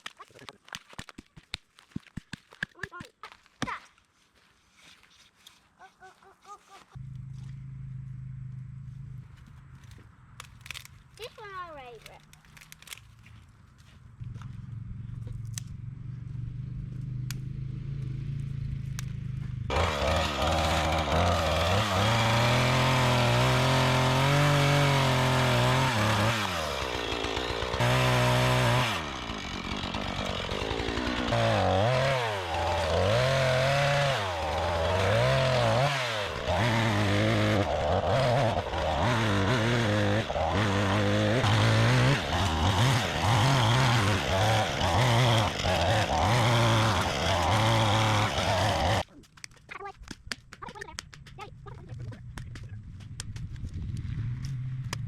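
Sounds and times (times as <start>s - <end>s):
chainsaw engine revving: 19.7s - 49.1s.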